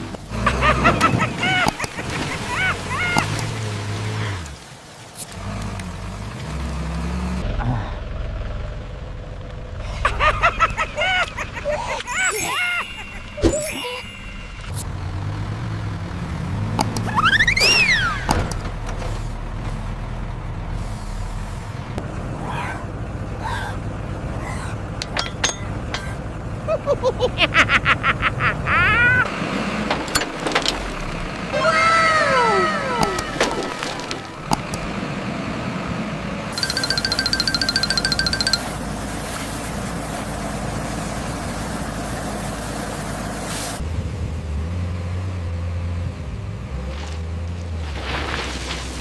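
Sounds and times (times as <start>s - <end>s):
tractor engine running: 7.4s - 27.3s, 29.3s - 31.7s, 32.6s - 43.6s
high-pitched calls: 12.0s - 14.8s, 36.6s - 38.8s
squeaky chirps rising in pitch: 12.1s - 14.8s, 17.1s - 18.3s
sharp clicks: 16.8s - 17.1s.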